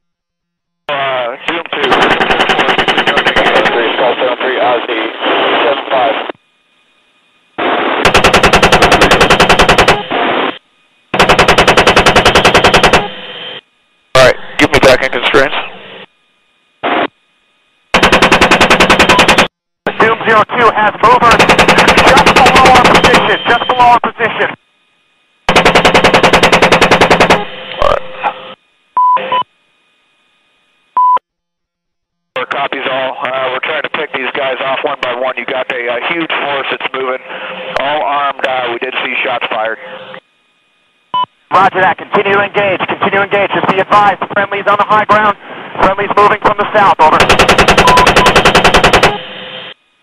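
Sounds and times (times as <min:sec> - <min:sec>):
radio-style hiss: 0:00.9 - 0:08.3, 0:09.2 - 0:11.2, 0:12.9 - 0:17.4, 0:19.9 - 0:25.3, 0:27.5 - 0:28.6, 0:32.4 - 0:40.8, 0:41.4 - 0:47.4
automatic gunfire: 0:01.8 - 0:03.8, 0:08.0 - 0:10.1, 0:11.2 - 0:13.1, 0:18.0 - 0:19.5, 0:21.3 - 0:23.3, 0:25.5 - 0:27.4, 0:47.1 - 0:49.2
machine-gun fire: 0:01.8 - 0:03.9, 0:08.0 - 0:10.2, 0:11.1 - 0:13.2, 0:17.9 - 0:19.5, 0:21.2 - 0:23.4, 0:25.5 - 0:28.0, 0:47.1 - 0:49.3
short radio beeps: 0:22.4 - 0:24.1, 0:47.8 - 0:48.3.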